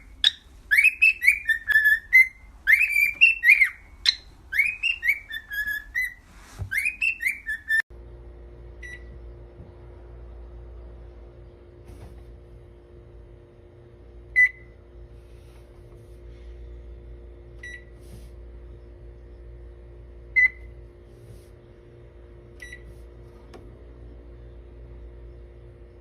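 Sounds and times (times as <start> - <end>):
steady low hum: 7.4 - 26.0.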